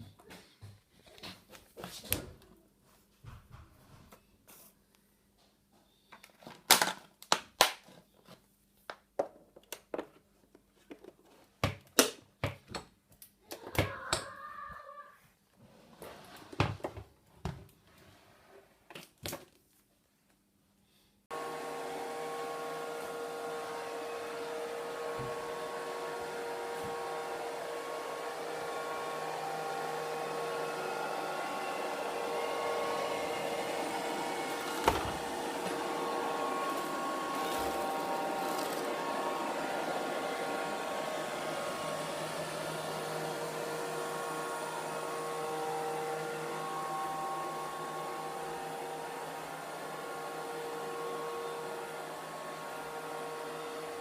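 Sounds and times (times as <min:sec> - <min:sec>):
robot vacuum cleaner whirring: 0:21.3 - 0:54.0.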